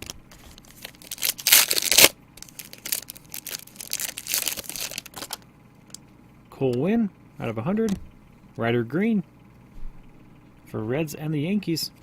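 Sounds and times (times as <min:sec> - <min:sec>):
wrapper crinkling and rustling: 0:00.0 - 0:05.4
wrapper tearing open: 0:00.0 - 0:05.4.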